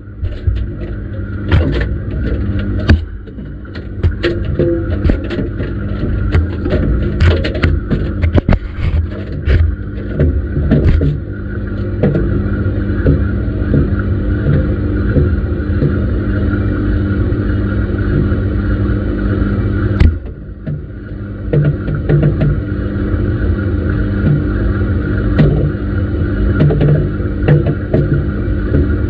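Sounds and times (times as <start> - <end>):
washing machine drum humming: 0.0 - 29.0
knocks from tumbling load: 0.2 - 16.1, 20.0 - 22.7.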